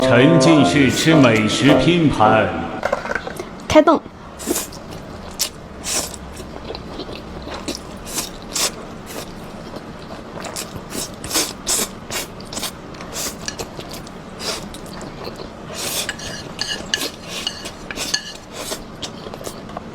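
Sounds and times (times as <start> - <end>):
person chewing crunchy food: 4.4 - 19.9.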